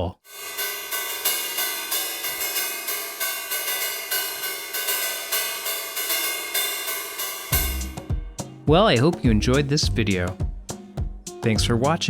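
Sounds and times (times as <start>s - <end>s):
wire brushes striking cymbal: 0.3s - 9.2s.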